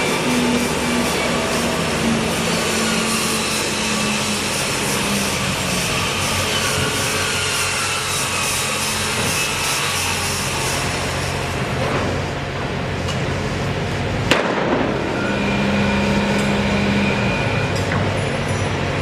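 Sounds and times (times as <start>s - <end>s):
engine humming: 10.3s - 19.0s
sharp bang: 14.3s - 15.2s.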